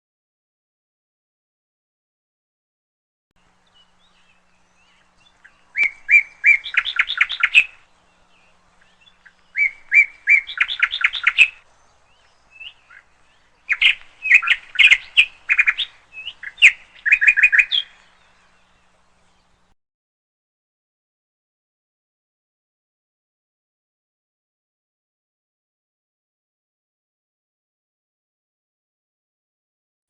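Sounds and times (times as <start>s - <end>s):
canary singing: 3.4s - 19.7s.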